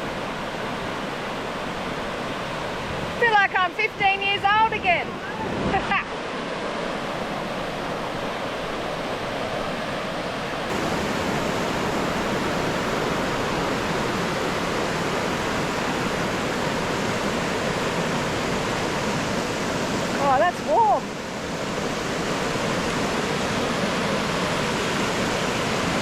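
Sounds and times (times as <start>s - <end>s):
water rushing over rocks: 10.7s - 26.0s.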